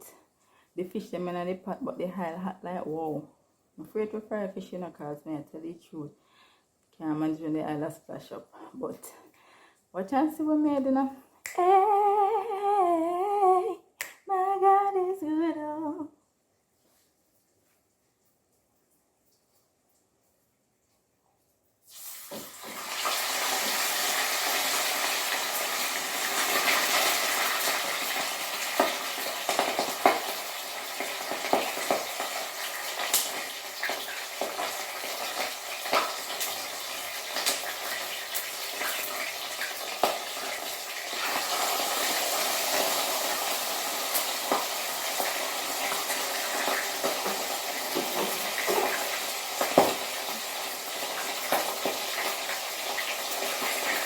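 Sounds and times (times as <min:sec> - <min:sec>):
oil crackling and popping: 0:21.7 - 0:54.0
fish sizzling in hot oil: 0:21.9 - 0:54.0.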